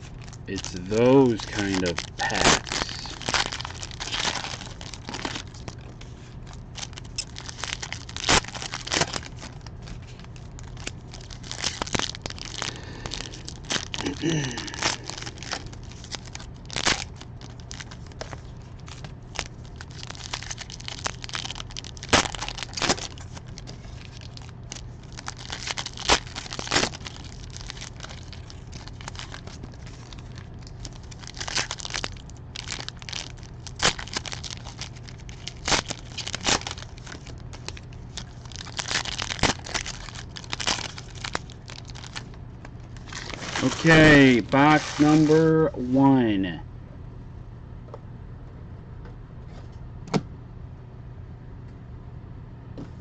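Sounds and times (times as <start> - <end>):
card wrappers tearing and crinkling: 0.0 - 45.5
low hum: 0.0 - 53.0.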